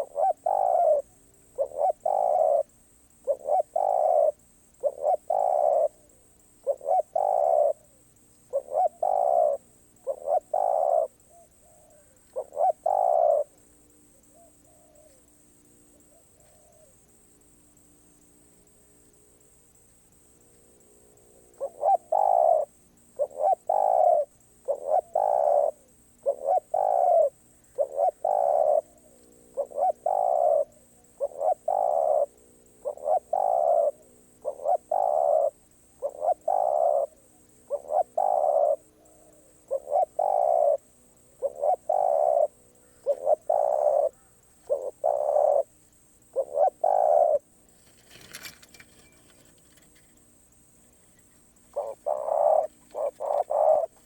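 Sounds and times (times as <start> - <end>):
dove cooing: 0.0 - 15.3, 15.9 - 17.0, 21.4 - 50.1, 51.0 - 54.0
faint rustle: 47.4 - 54.0.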